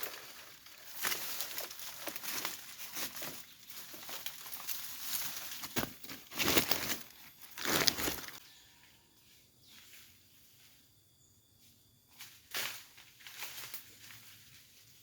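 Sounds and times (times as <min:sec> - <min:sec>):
dry leaf litter rustling: 0:00.0 - 0:08.4.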